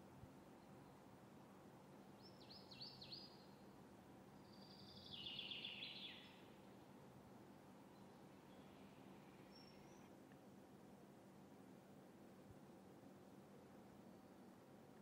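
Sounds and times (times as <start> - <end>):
bird chirps: 9.4 - 10.1.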